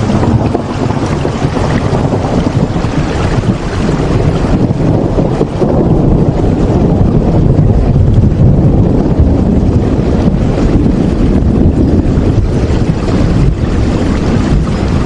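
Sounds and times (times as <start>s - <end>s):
deep rumble: 0.0s - 15.0s
steady loud rain: 0.0s - 15.0s.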